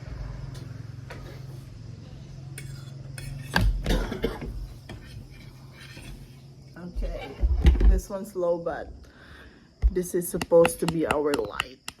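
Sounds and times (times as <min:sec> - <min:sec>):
steady low hum: 0:00.0 - 0:12.0
cutlery and dishes clinking: 0:02.6 - 0:06.3.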